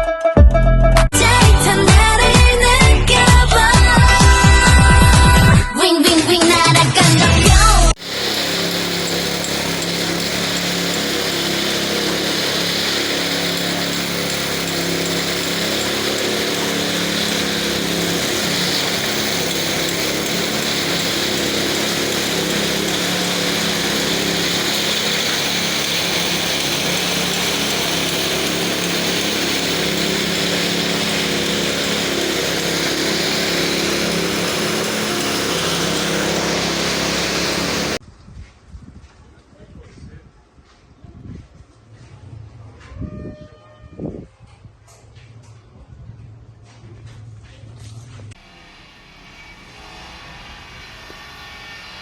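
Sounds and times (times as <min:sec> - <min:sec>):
electric pressure washer running: 0:08.0 - 0:38.0.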